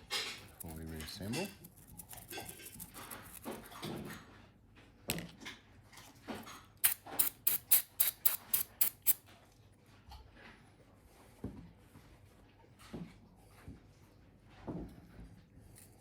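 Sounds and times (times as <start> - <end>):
sharp scraping strokes: 6.8 - 9.2.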